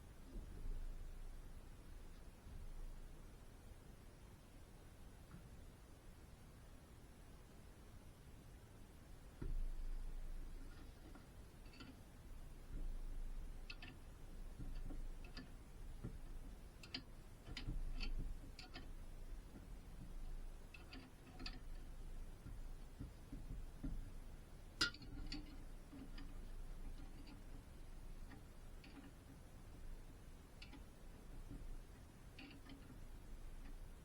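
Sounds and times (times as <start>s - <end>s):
light metallic clicks and taps: 9.4s - 34.0s.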